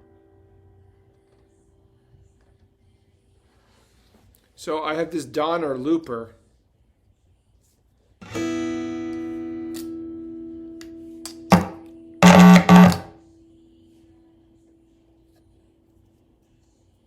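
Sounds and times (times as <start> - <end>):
acoustic guitar strumming: 8.2 - 10.4, 11.4 - 13.1
single guitar note ringing: 11.4 - 13.1.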